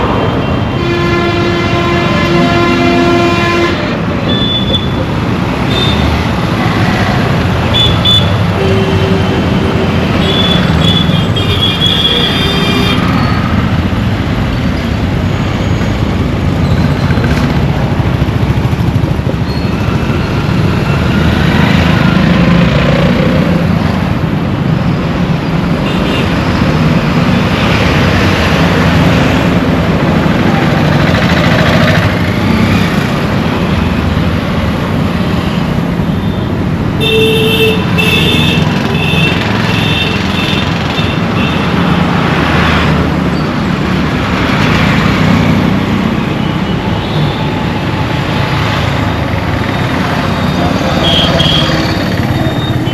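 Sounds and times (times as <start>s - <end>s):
road traffic rumble: 0.0s - 52.9s
car horns: 0.6s - 5.0s, 7.6s - 13.2s, 37.0s - 41.8s, 50.8s - 51.9s.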